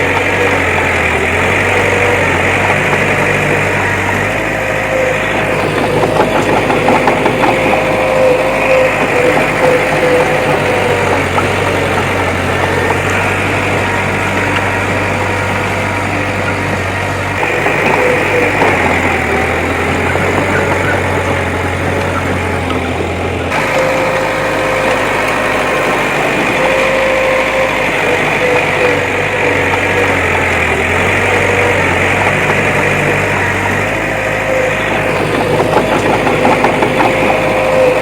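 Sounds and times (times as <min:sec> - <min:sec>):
diesel engine of heavy machinery: 0:00.0 - 0:38.0
wavering whine: 0:00.0 - 0:38.0.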